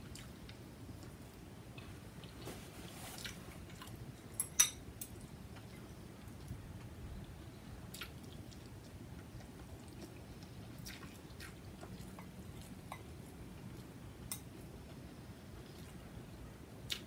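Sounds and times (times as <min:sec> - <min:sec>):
chewing noodles: 0:07.2 - 0:12.8.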